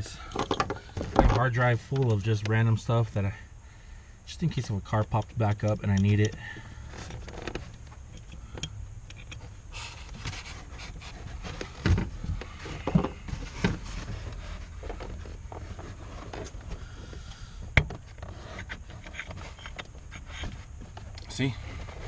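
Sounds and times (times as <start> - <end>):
hands rubbing and rustling wiring: 4.6 - 22.0.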